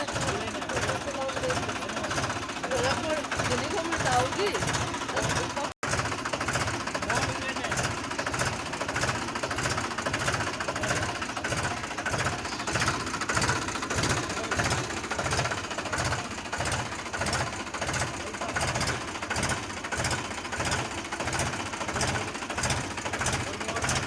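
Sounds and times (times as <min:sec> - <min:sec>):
tractor diesel engine clattering: 0:00.0 - 0:24.0.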